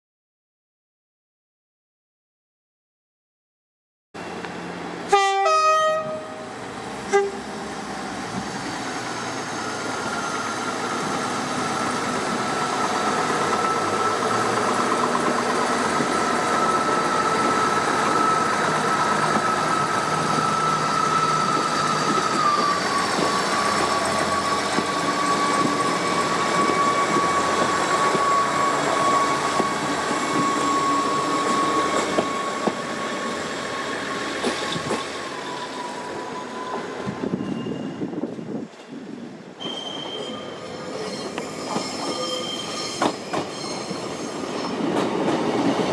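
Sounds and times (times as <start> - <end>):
train running noise with whine: 4.2 - 45.9
train horn blast: 5.1 - 6.5, 7.1 - 7.4.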